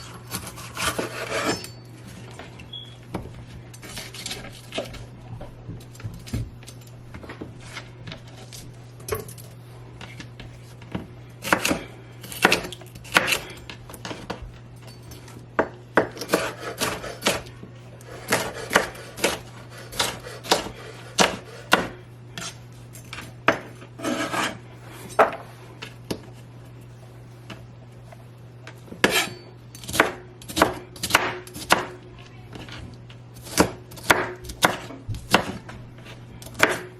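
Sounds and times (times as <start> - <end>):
steady low hum: 0.0 - 36.9
knife chopping coconut husk: 0.3 - 1.6, 11.4 - 13.6, 15.6 - 17.5, 18.2 - 22.5, 29.0 - 32.0, 33.4 - 35.7, 36.4 - 36.9.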